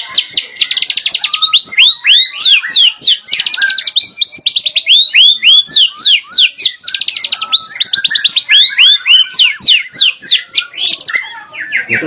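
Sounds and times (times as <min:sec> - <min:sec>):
songbird singing trills and whistles: 0:00.0 - 0:12.0.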